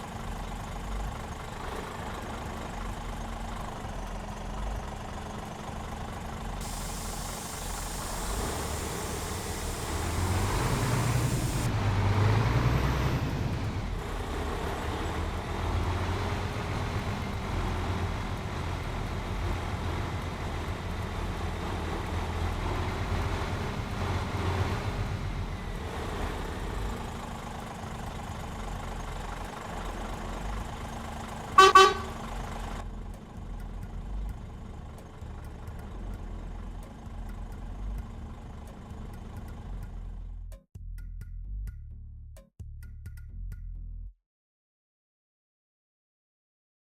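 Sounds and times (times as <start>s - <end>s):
truck diesel engine revving: 0.2s - 32.8s
truck horn double toot: 31.6s - 32.3s.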